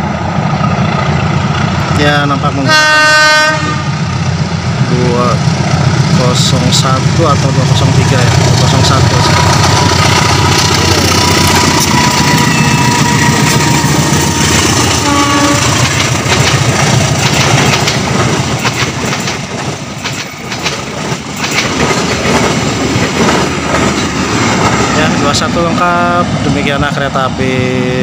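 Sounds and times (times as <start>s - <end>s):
train horn blast: 2.6s - 3.9s, 11.1s - 15.9s
locomotive engine running: 3.6s - 26.6s
train wheels clicking over rail joints: 3.9s - 25.7s.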